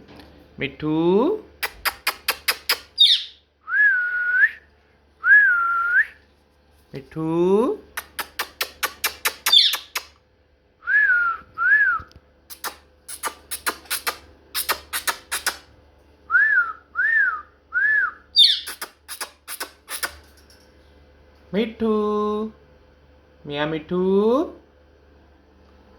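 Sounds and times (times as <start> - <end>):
sharp clicks: 1.6 - 3.0, 8.0 - 10.2, 12.5 - 15.7.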